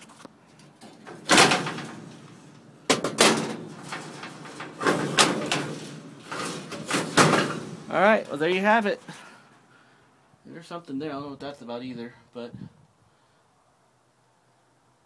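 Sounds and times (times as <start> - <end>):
heavy clunks and bangs: 0.8 - 8.5.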